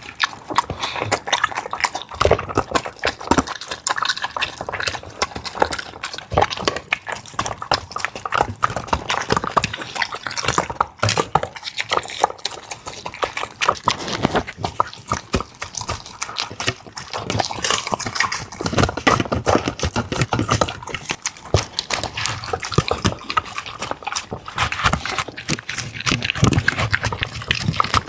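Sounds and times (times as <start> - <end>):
dog chewing wet food: 0.0 - 28.0.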